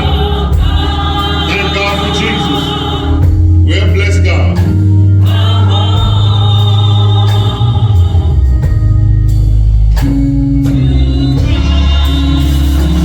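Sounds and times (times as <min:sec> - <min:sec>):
voices singing: 0:00.0 - 0:09.0, 0:10.6 - 0:13.0
band with bass: 0:00.0 - 0:13.0
drum beats: 0:00.0 - 0:13.0.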